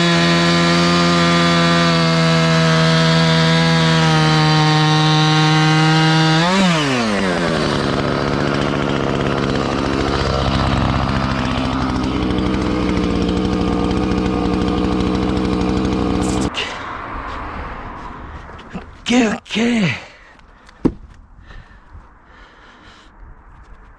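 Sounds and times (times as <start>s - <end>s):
chainsaw cutting log: 0.0s - 16.8s.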